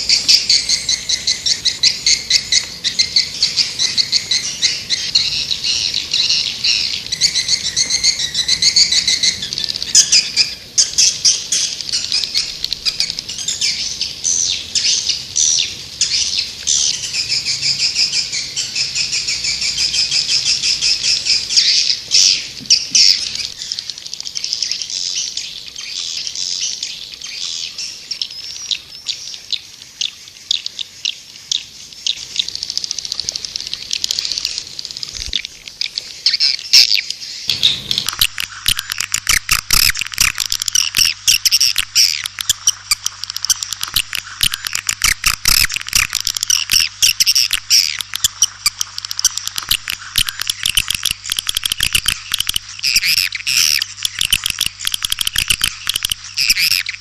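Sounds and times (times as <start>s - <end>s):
swiftlets twittering: 37.5s - 57.0s.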